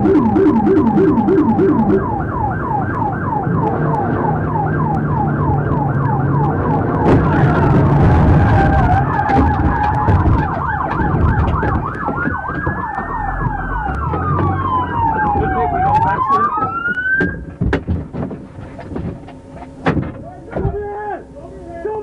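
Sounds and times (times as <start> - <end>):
police siren wail: 0.0 - 17.5
police siren yelp: 0.0 - 17.5
low vehicle rumble: 0.0 - 21.6
sharp knocks: 7.0 - 20.8.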